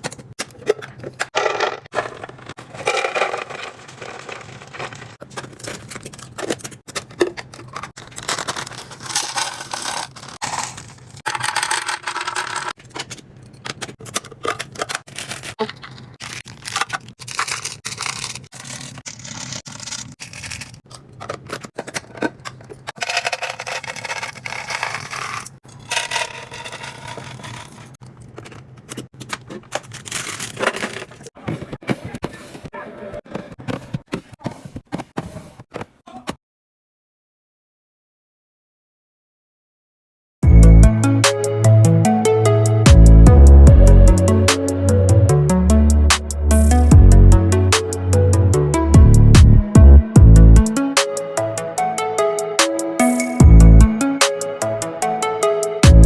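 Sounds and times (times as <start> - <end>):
packaging rustling and clicking: 0.0 - 31.3.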